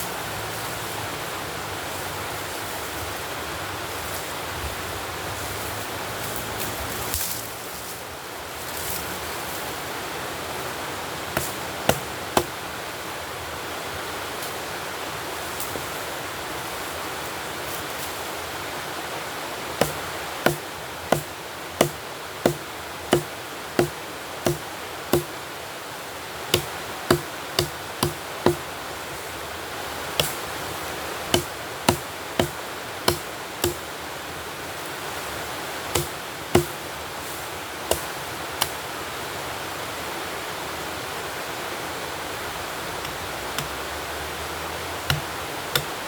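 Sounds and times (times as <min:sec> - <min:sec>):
tool chopping wood: 0:11.4 - 0:12.6, 0:19.8 - 0:25.4, 0:26.5 - 0:28.7, 0:30.2 - 0:30.5, 0:31.2 - 0:33.9, 0:35.9 - 0:36.8, 0:37.9 - 0:38.8, 0:45.0 - 0:46.0.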